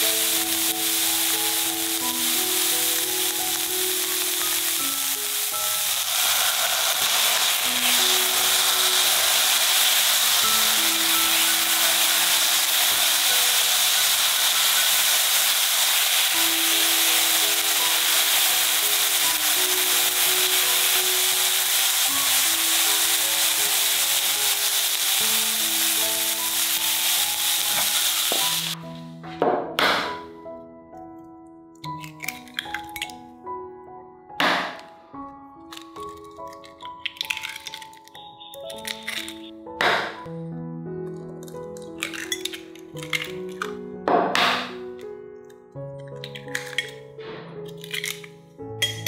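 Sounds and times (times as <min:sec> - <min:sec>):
vegetables sizzling in a hot pan: 0:00.0 - 0:28.8
soft background music: 0:00.0 - 0:49.0.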